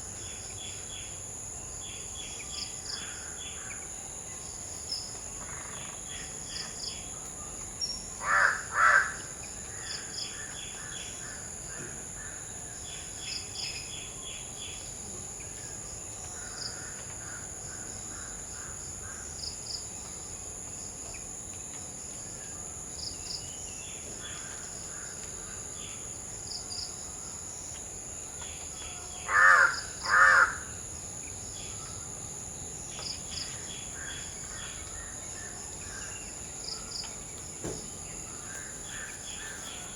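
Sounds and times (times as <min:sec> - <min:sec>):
crow cawing: 0:08.2 - 0:09.2, 0:29.2 - 0:30.7.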